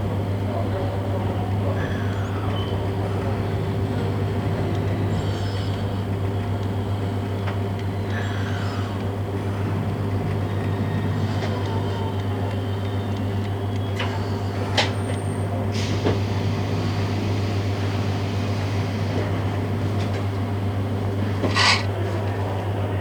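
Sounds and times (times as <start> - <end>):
electric train car hum: 9.0 - 21.4
short hisses: 21.4 - 21.9.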